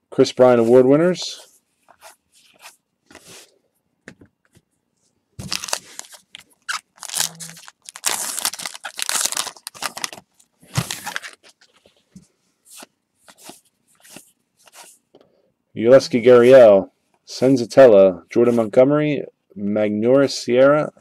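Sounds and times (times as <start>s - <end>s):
card pack wrapper tearing: 5.4s - 11.5s.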